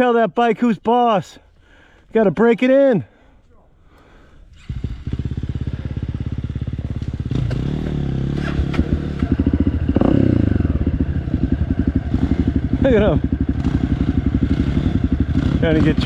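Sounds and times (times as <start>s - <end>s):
dirt bike engine revving: 4.5s - 16.0s.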